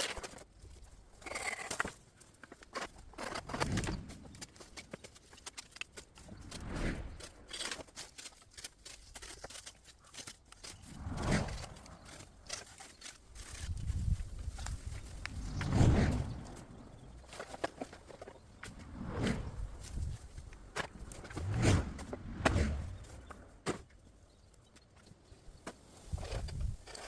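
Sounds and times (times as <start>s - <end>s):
dry bamboo litter rustling: 0.0s - 22.0s
twigs snapping: 1.4s - 15.8s.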